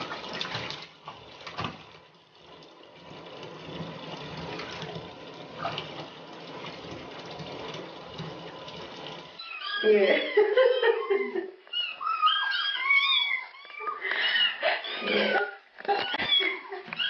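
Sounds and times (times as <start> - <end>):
water running from tap into tub: 0.0 - 10.4.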